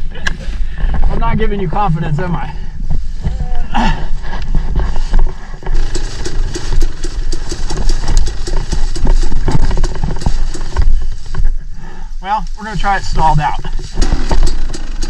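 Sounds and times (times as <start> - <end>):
dirt bike engine rumbling: 0.0 - 15.0
knocks and clatter on rocks: 4.5 - 11.6, 13.7 - 15.0.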